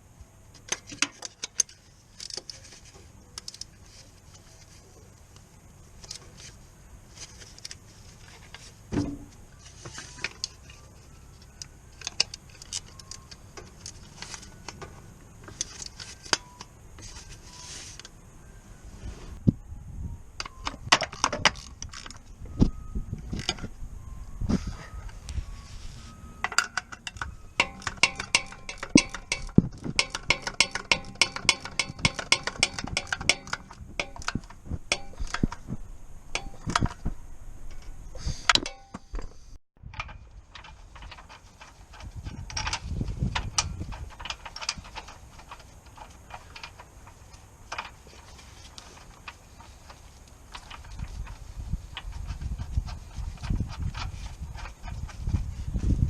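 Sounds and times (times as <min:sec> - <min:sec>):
metal tools clinking: 0:24.6 - 0:35.7
ratchet clicking: 0:26.5 - 0:35.6.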